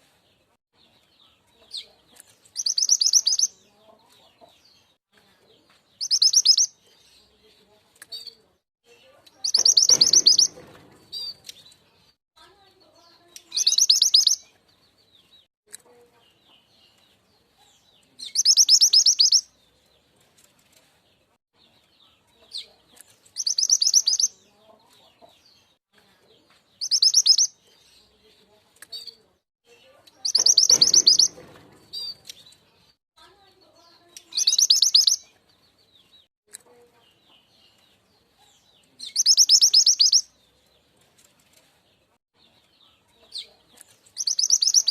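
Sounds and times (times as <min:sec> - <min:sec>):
bird rapid high trill: 0:09.5 - 0:11.3, 0:30.3 - 0:31.4
faint short bird chips: 0:30.2 - 0:32.6.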